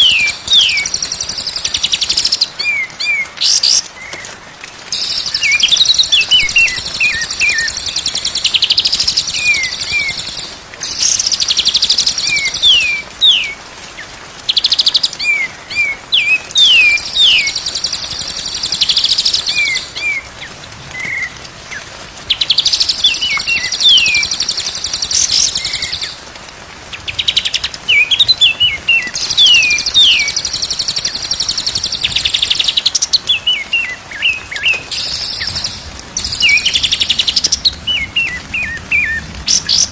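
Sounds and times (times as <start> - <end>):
high chattering birdsong: 5.0 - 13.6, 14.4 - 20.2, 27.0 - 39.9.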